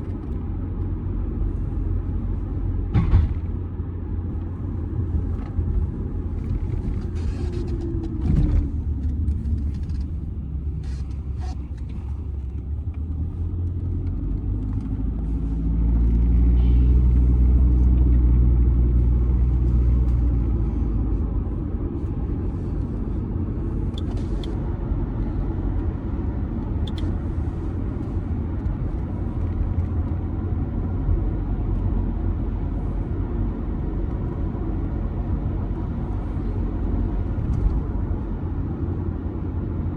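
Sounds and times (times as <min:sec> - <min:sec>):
diesel car engine driving: 0:00.0 - 0:39.9
road rumble: 0:00.0 - 0:39.9
thump: 0:02.9 - 0:03.6.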